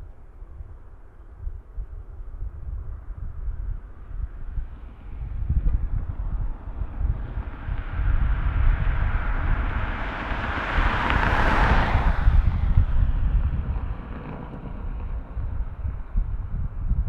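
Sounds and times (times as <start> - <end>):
wind rumble on microphone: 0.0 - 17.0
jet airliner passing: 4.2 - 17.0.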